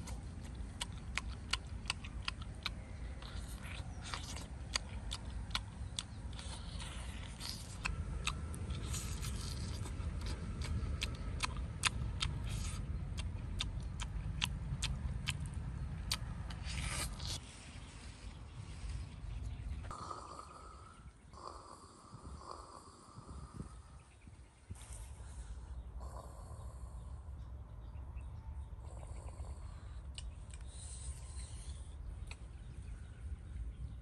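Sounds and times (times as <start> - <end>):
man chewing with wet smacks: 0.0 - 17.4
low rumble: 0.0 - 34.0.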